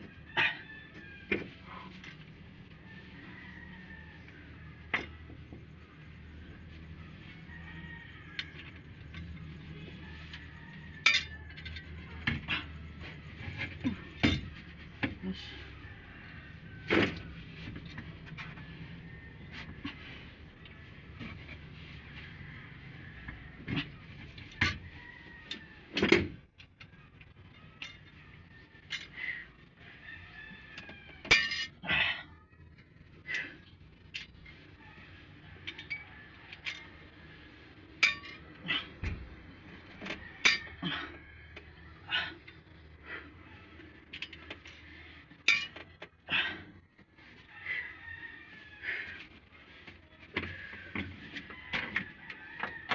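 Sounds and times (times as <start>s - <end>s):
metal tools clinking: 11.0s - 11.9s, 31.3s - 31.8s, 38.0s - 38.5s, 45.4s - 45.8s.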